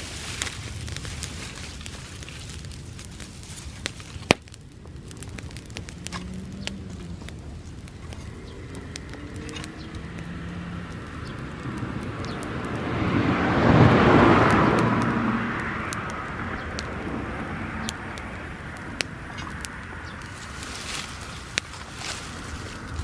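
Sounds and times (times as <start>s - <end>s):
grass fire crackling: 0.0s - 23.0s
vehicle passing by: 5.4s - 23.0s.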